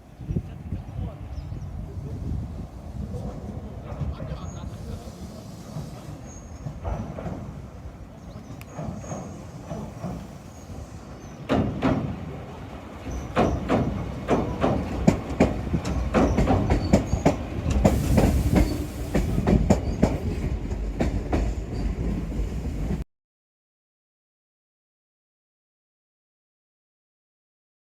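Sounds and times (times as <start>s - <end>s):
train rumble: 0.1s - 23.0s
brief hiss: 4.6s - 6.6s, 17.8s - 19.5s
train wheels clacking on rail joints: 4.9s - 23.0s.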